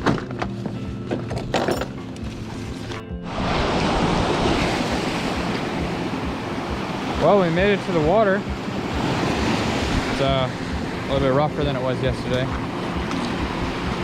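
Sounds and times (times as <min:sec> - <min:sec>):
background music: 0:00.0 - 0:14.0
ocean surf breaking: 0:02.5 - 0:14.0
wind on microphone: 0:08.0 - 0:11.3.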